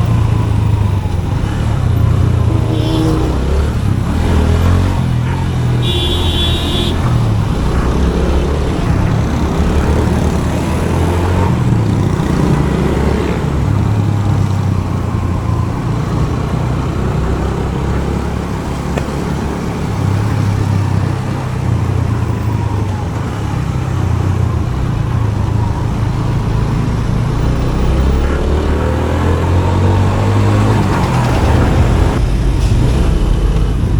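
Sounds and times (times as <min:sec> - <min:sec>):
motorcycle engine running: 0:00.0 - 0:14.4
traffic drone: 0:00.0 - 0:33.9
vehicle horn beeping: 0:02.5 - 0:03.5, 0:05.3 - 0:07.3.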